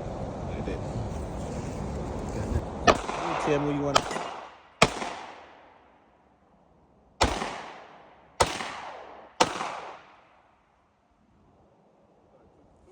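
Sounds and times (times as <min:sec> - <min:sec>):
handgun shots with echo: 0:02.9 - 0:05.8, 0:07.2 - 0:10.4.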